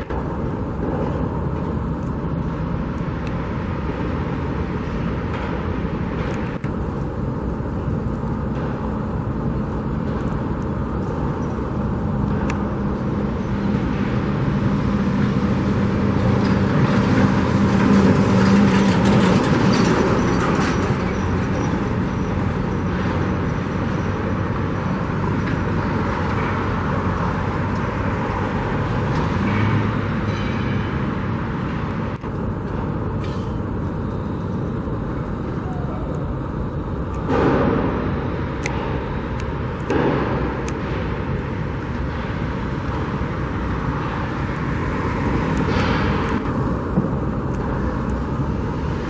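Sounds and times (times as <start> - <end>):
road traffic: 0.0 - 49.0.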